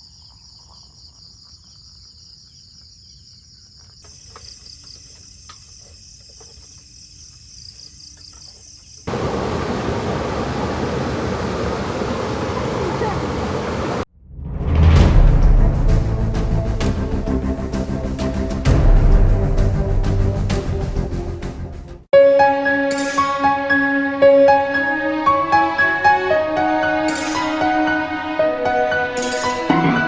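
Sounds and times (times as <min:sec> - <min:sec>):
crickets trilling: 0:00.0 - 0:09.5.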